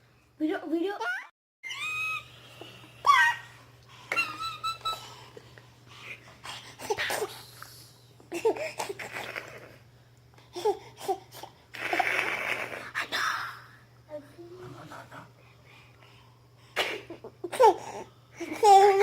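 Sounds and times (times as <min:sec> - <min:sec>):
baby laughing and babbling: 0:08.3 - 0:09.3, 0:17.4 - 0:19.0.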